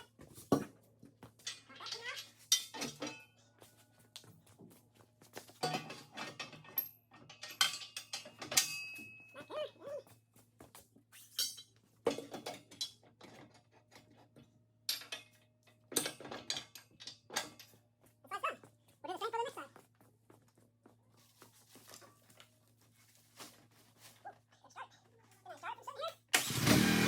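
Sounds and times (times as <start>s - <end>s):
metallic clinks and knocks: 1.3s - 3.6s, 5.6s - 9.6s, 11.2s - 17.8s.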